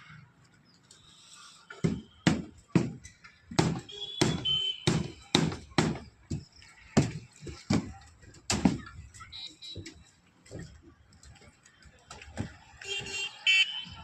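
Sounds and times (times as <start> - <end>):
dull thumps: 1.7 - 9.2.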